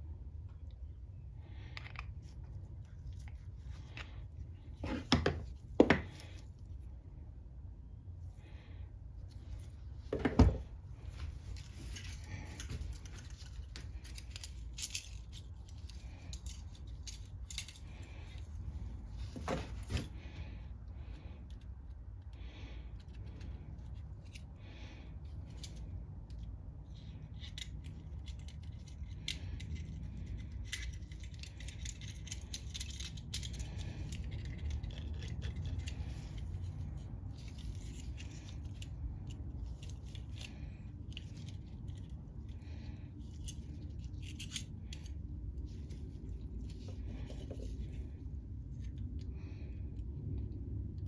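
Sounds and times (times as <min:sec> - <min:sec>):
steady low hum: 0:00.0 - 0:51.0
small metal clicks and scraping: 0:11.1 - 0:20.0, 0:25.3 - 0:49.3.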